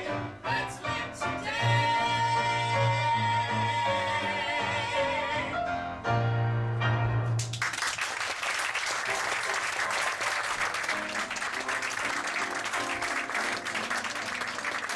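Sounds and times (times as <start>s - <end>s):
audience applauding: 7.4s - 14.9s.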